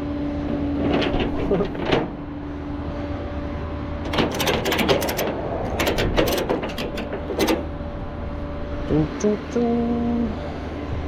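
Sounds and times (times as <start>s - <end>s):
rapid mechanical clicking and rattling: 0.5s - 2.2s, 4.0s - 7.8s.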